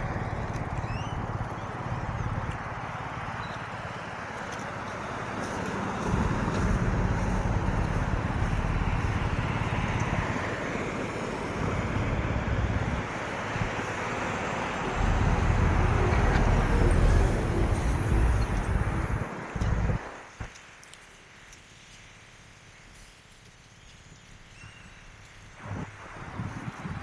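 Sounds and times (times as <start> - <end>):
vehicles driving past: 0.0 - 20.3
heavy low rumble: 6.0 - 20.1.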